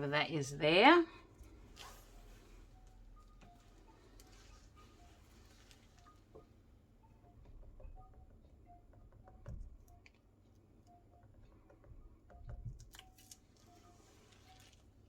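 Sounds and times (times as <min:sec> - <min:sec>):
faint clicks and taps: 0:05.5 - 0:13.8.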